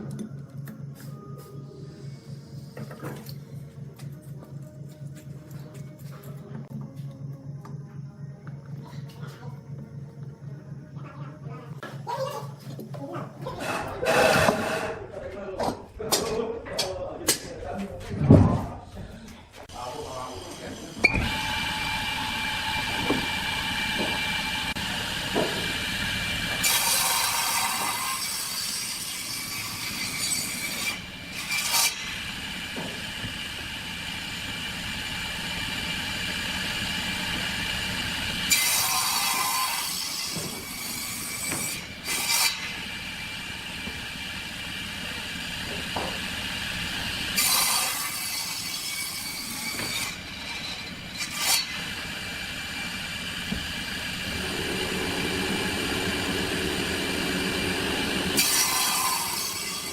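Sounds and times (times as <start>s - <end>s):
wood lathe whine: 19.8s - 59.9s.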